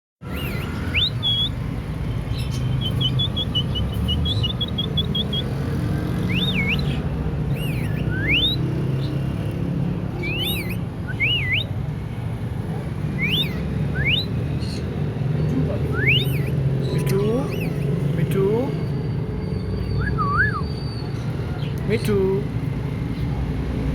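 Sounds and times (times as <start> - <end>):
bird whistling: 0.3 - 1.6, 2.3 - 9.2, 10.2 - 11.8, 13.2 - 14.8, 15.6 - 18.0, 18.6 - 21.3.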